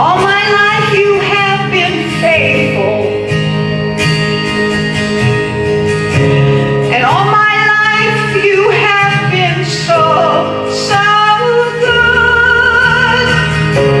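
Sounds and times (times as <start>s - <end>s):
acoustic guitar: 0.0s - 14.0s.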